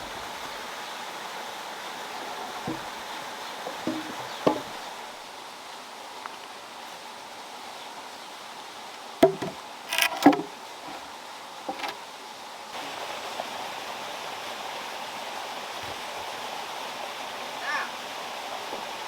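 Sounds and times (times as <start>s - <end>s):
flowing water: 0.0s - 19.0s
sharp knocks and clatters: 2.6s - 4.9s, 9.2s - 11.0s, 11.7s - 12.0s.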